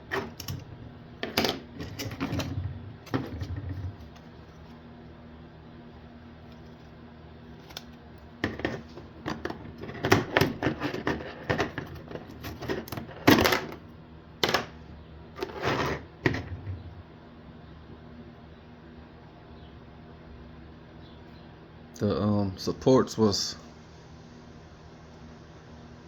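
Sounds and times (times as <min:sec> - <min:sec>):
plastic case parts clicking and knocking: 0:08.4 - 0:13.8.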